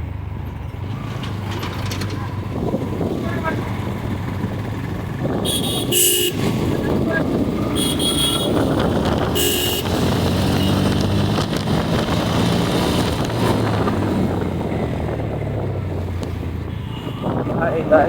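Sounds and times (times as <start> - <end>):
motorcycle engine: 0.0 - 18.0
wind rush on microphone: 1.3 - 18.0
short horn honks: 5.4 - 6.9, 7.7 - 10.9, 16.7 - 17.4.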